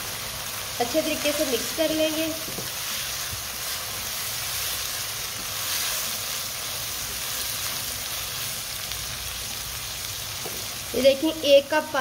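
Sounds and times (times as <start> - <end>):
food sizzling in a wok: 0.0 - 12.0
spatula stirring food: 0.4 - 9.0.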